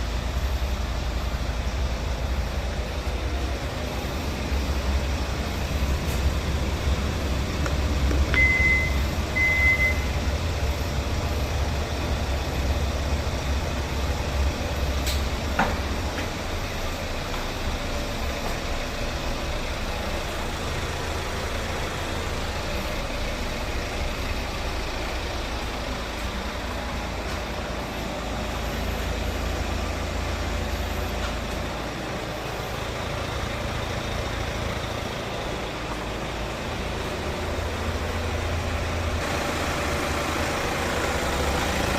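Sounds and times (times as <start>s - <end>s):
vehicle engine rumble: 0.0s - 41.9s
short high-pitched beeps: 8.4s - 10.1s.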